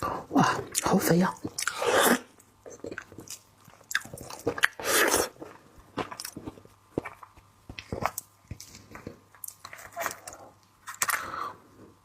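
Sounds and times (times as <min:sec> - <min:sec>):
crackles and clicks of chewing: 0:02.4 - 0:11.3.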